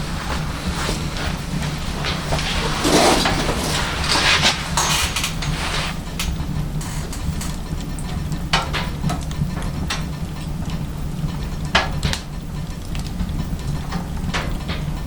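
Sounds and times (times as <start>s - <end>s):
firewood crackling and popping: 0.0s - 15.0s.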